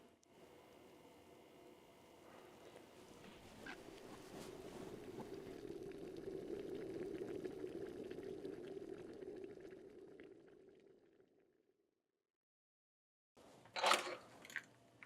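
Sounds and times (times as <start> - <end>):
water boiling in a pot: 1.8 - 11.4.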